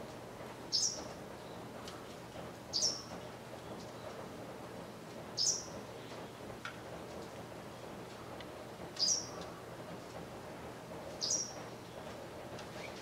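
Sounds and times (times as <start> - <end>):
small bird calling: 0.7 - 1.1, 2.7 - 3.1, 5.4 - 5.7, 9.0 - 9.4, 11.2 - 11.6.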